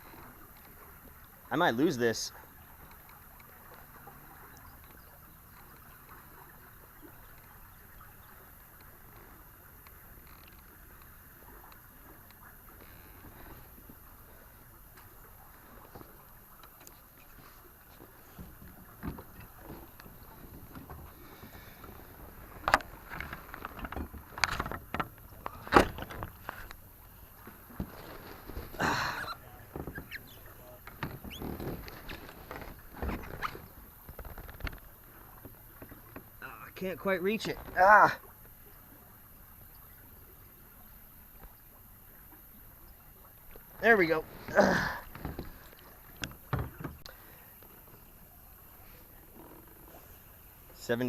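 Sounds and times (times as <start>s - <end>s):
water lapping against kayak hull: 0.0s - 51.0s.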